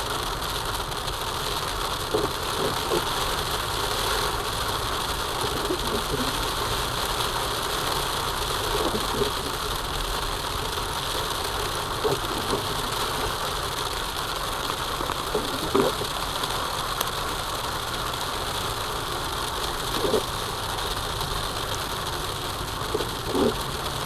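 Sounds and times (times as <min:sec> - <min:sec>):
car engine and road hum: 0:00.0 - 0:24.0.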